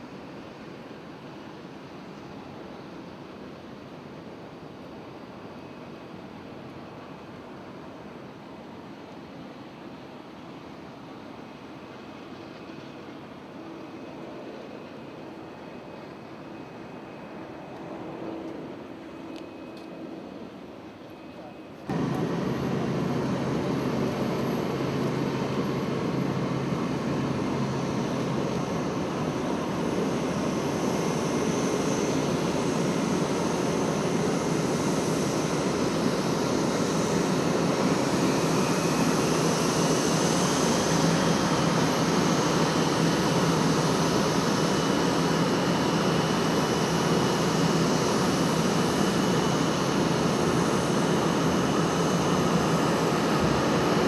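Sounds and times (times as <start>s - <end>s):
jet engines running: 21.9s - 54.0s.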